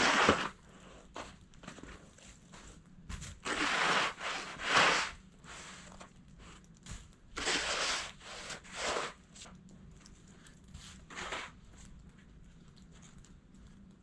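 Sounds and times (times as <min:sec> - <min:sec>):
snow shovel scraping snow: 0:00.0 - 0:00.6, 0:03.4 - 0:05.2, 0:07.4 - 0:09.2.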